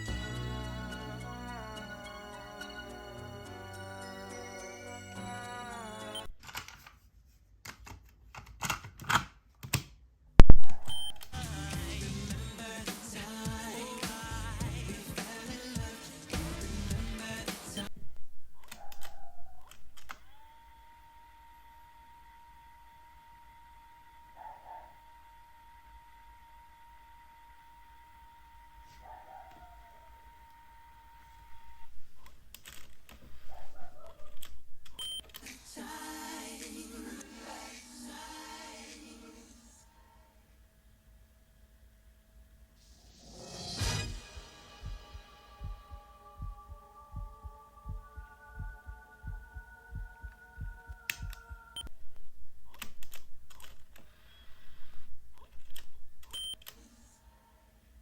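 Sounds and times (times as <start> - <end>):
steady high tone: 43.4 - 51.9.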